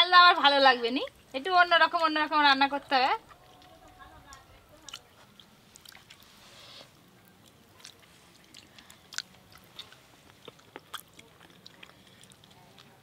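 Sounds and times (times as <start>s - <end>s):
soft hiss: 5.2s - 8.9s
person chewing: 7.3s - 13.0s.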